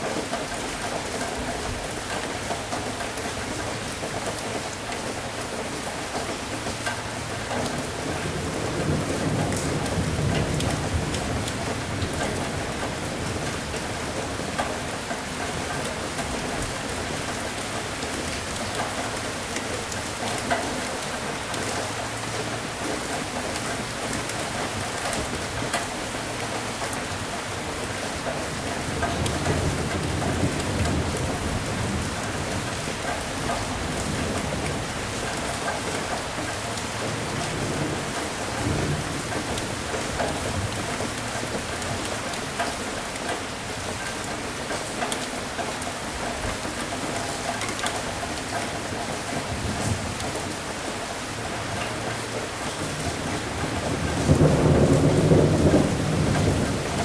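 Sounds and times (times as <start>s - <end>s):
heavy rain: 0.0s - 57.0s
thunder rumbling: 7.8s - 19.9s, 22.3s - 45.0s, 51.9s - 57.0s.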